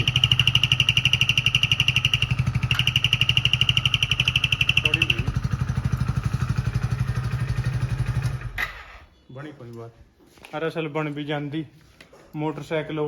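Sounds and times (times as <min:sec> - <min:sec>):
turbo whistle chirping: 0:00.0 - 0:05.5
motorcycle engine running: 0:00.0 - 0:08.6.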